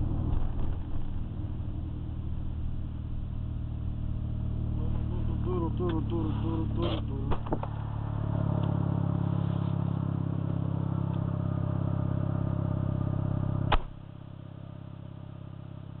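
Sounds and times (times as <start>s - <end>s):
rotary engine idling: 0.0s - 15.6s
sharp thump: 13.7s - 14.0s.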